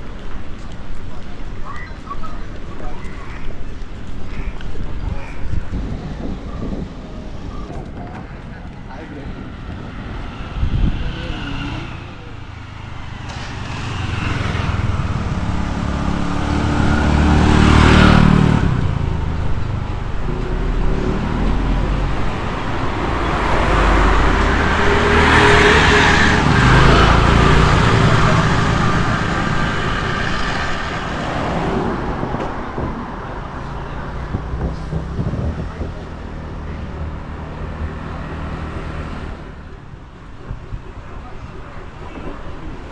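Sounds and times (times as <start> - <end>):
vehicles passing close by: 0.0 - 42.9.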